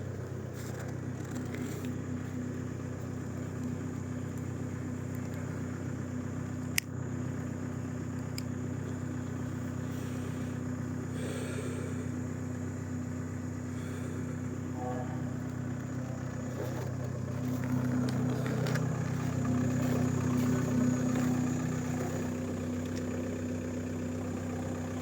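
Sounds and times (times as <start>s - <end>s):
truck engine idling: 0.0s - 25.0s.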